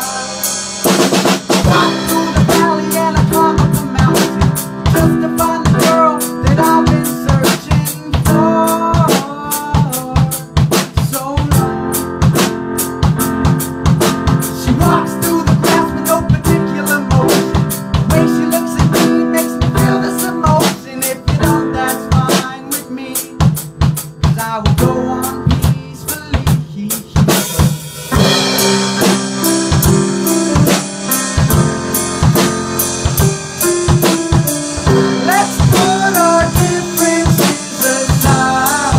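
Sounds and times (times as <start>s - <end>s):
drum kit beat: 0.0s - 38.9s
sustained piano chords: 0.0s - 38.9s.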